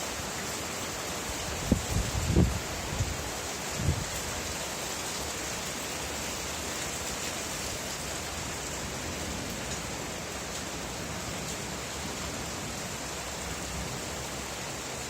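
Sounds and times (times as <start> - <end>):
steady rainfall: 0.0 - 15.0.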